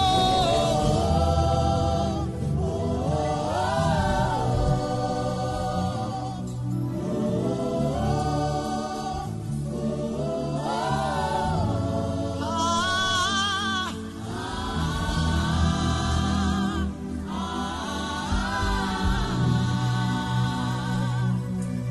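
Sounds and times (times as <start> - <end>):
sustained low backing: 0.0 - 21.9.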